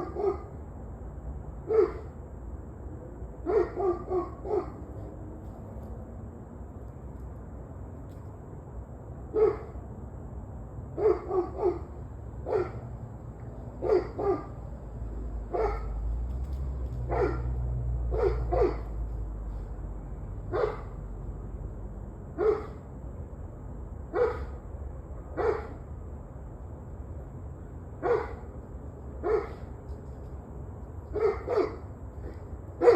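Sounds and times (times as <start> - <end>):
dog barking: 0.0 - 0.5, 1.6 - 2.1, 3.4 - 4.9, 9.3 - 9.8, 11.0 - 12.9, 13.8 - 14.6, 15.5 - 16.0, 17.1 - 19.0, 20.5 - 21.0, 22.4 - 22.8, 24.1 - 24.6, 25.3 - 25.8, 28.0 - 28.5, 29.2 - 29.7, 31.1 - 32.9.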